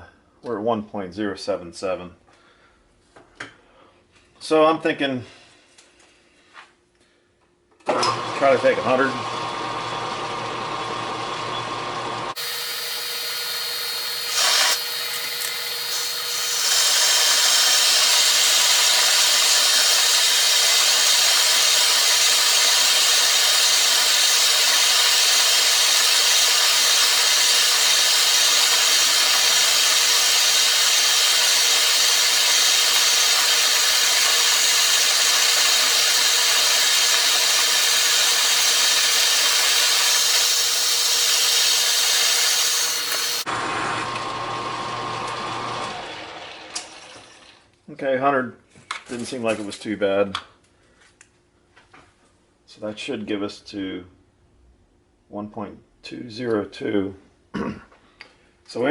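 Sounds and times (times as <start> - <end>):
metal lathe running: 7.9 - 47.0
cutting tool scraping steel: 12.4 - 43.5.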